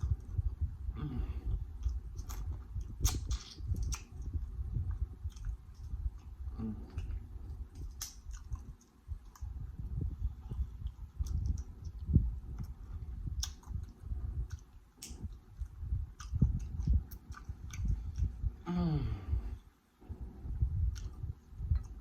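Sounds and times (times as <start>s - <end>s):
wet chewing mouth sounds: 0.0s - 18.6s, 20.2s - 22.0s
hummed mm of approval: 0.9s - 1.6s, 6.5s - 7.2s, 18.6s - 19.6s.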